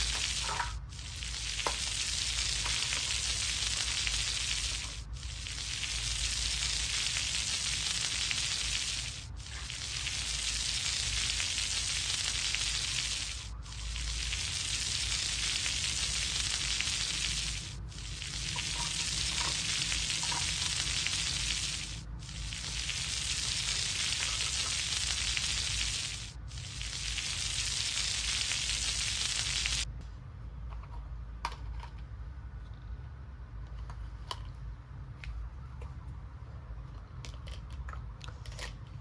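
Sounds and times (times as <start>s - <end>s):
toy stove sizzling: 0.0s - 29.9s.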